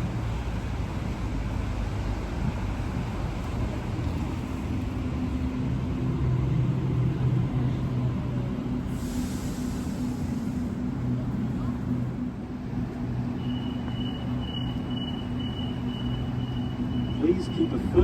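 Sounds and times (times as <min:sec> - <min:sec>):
electric train rumbling: 0:00.0 - 0:18.0
air brakes hissing: 0:08.9 - 0:10.8.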